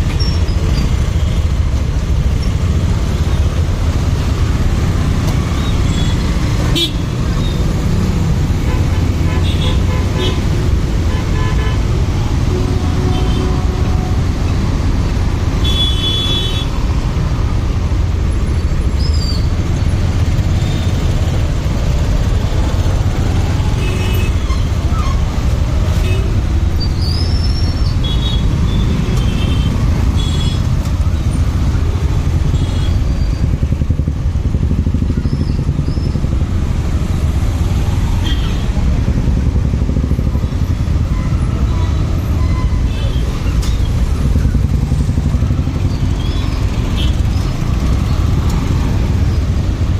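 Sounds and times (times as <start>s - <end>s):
vehicle horns: 5.6s - 7.2s, 8.6s - 14.5s, 15.6s - 16.8s, 27.9s - 30.8s
motorcycle engine rumble: 19.6s - 49.9s.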